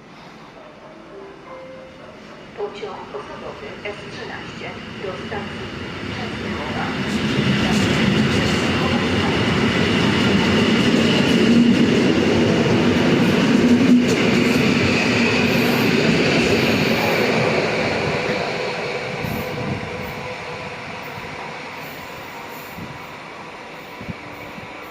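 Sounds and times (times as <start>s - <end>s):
electric train running: 4.2s - 24.9s.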